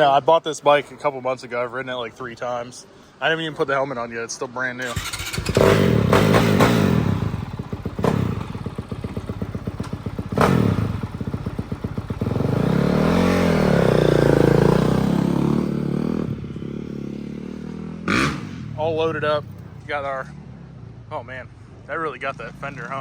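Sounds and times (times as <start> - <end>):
dirt bike engine idling and revving: 4.9 - 23.0.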